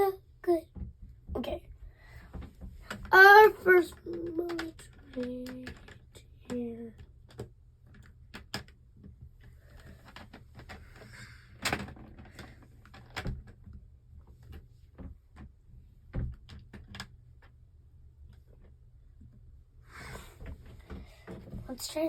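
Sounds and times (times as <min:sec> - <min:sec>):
plastic pieces clicking: 0:02.8 - 0:13.6.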